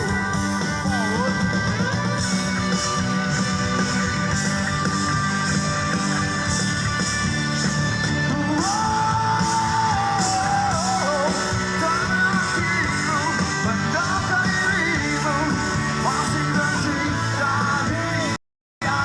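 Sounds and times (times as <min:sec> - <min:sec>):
live rock band: 0:00.0 - 0:19.0
person singing: 0:08.2 - 0:19.0.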